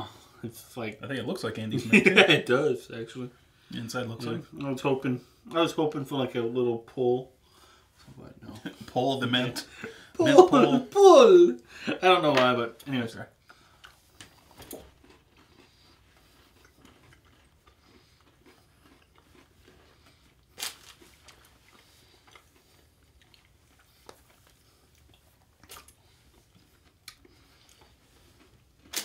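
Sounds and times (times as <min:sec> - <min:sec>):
chewing chocolate bar: 0:13.3 - 0:29.0.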